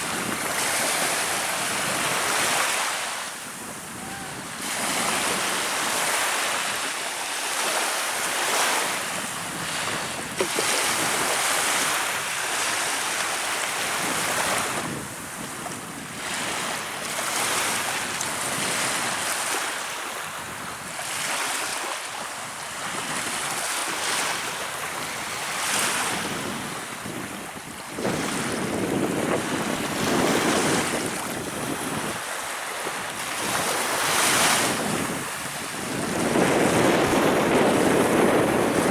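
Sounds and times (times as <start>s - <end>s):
sea waves washing in: 0.0s - 18.1s, 23.5s - 38.9s
wind on microphone: 0.0s - 38.9s.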